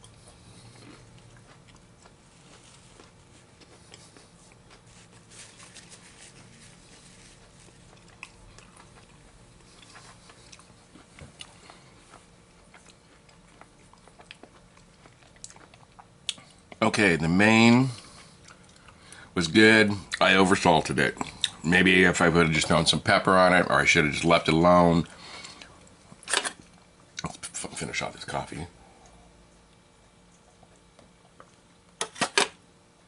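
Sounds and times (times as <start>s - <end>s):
person chewing a cookie: 0.0s - 16.9s, 17.8s - 20.3s, 25.0s - 27.6s, 28.8s - 32.0s.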